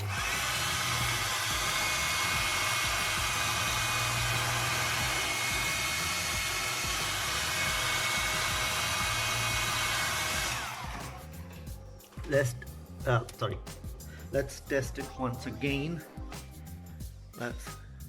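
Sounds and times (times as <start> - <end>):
hair dryer blowing: 0.0 - 11.3
motor winding down: 0.0 - 12.5.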